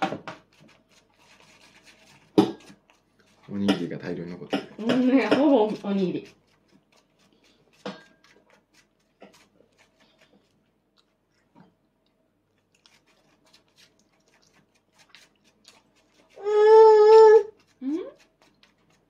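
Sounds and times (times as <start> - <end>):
toddler chewing food: 5.9 - 19.0.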